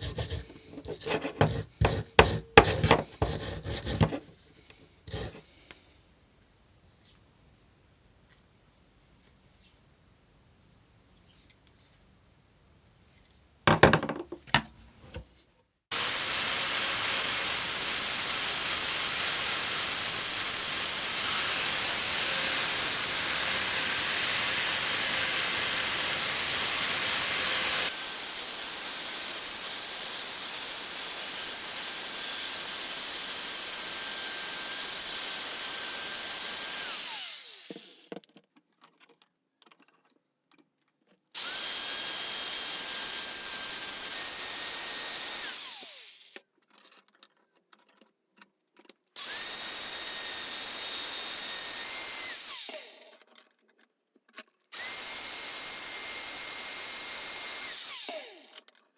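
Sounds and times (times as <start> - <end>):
motor winding down: 15.9 - 38.0, 41.4 - 46.4, 49.2 - 53.2, 54.8 - 58.6
power tool grinding metal: 15.9 - 38.1, 41.4 - 46.4, 49.2 - 53.2, 54.7 - 58.7
clatter of handling: 38.0 - 41.3, 46.5 - 49.2, 53.2 - 54.7.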